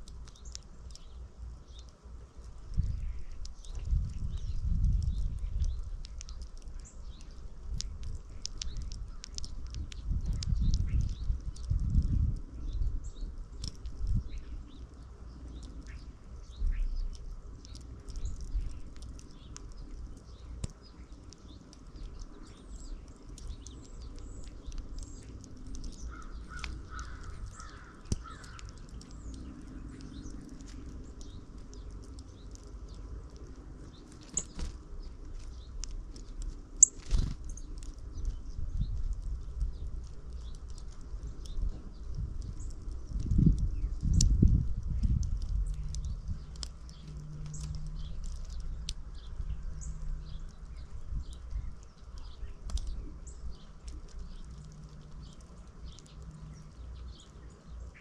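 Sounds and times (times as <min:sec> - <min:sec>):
low rumble of wind: 0:00.0 - 0:58.0
small birds chirping: 0:00.0 - 0:58.0
sharp clicks: 0:02.7 - 0:12.5, 0:16.7 - 0:57.3
harsh bird calls: 0:23.6 - 0:30.5.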